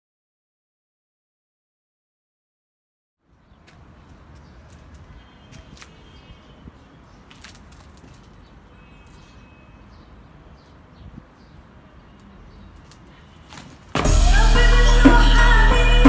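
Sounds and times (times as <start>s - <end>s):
birds chirping: 3.3s - 14.0s
loud music: 14.0s - 16.0s.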